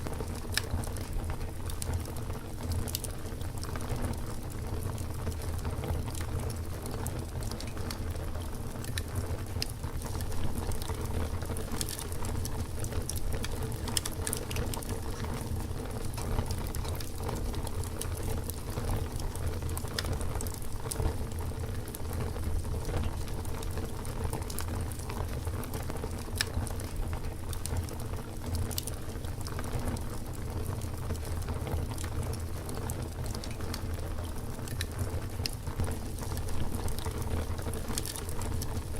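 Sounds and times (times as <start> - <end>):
campfire crackling and popping: 0.0 - 38.9
low fire rumble: 0.0 - 38.9.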